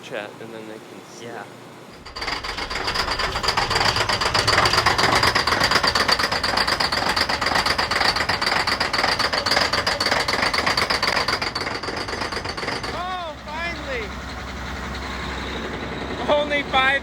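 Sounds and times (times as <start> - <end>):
diesel engine knocking and pounding: 2.0 - 17.0.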